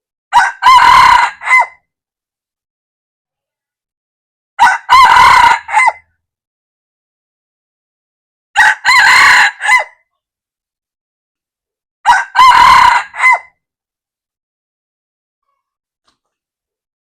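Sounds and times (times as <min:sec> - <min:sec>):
rooster crowing: 0:00.3 - 0:01.8, 0:04.6 - 0:06.0, 0:08.6 - 0:10.0, 0:12.0 - 0:13.5.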